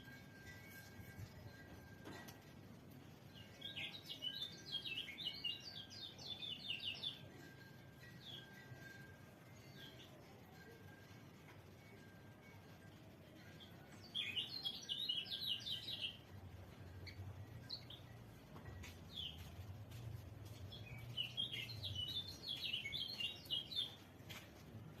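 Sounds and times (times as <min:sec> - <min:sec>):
bird twittering high chirps: 0:03.4 - 0:07.3, 0:14.0 - 0:16.3, 0:20.7 - 0:24.1.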